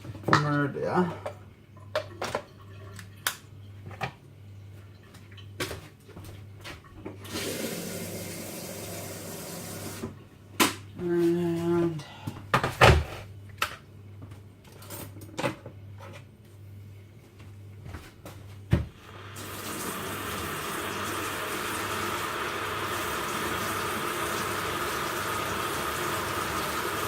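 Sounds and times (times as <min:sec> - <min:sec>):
tap water running into sink: 0:07.2 - 0:10.1, 0:19.1 - 0:27.0.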